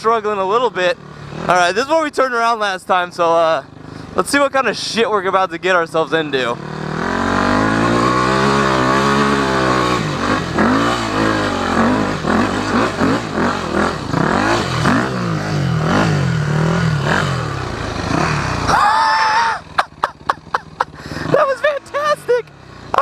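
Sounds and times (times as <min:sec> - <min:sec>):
dirt bike engine revving: 0:00.1 - 0:02.6, 0:03.6 - 0:23.0.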